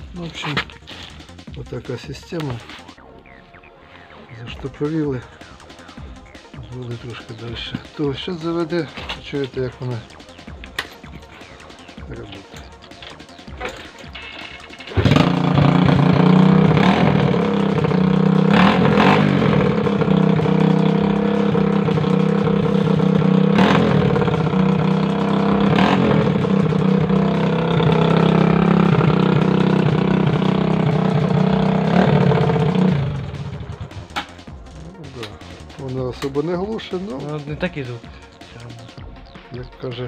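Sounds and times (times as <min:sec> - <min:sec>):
loud tricycle engine running: 0:07.0 - 0:34.4.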